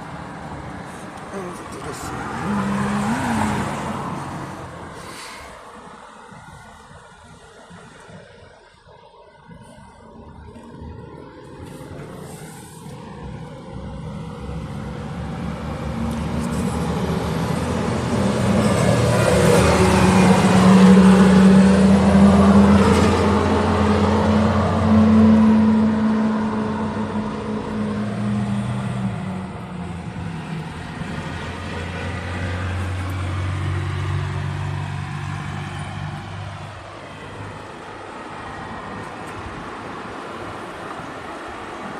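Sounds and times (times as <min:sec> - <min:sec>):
low road hum: 0:00.0 - 0:41.9
tyre and traffic noise: 0:00.0 - 0:41.9.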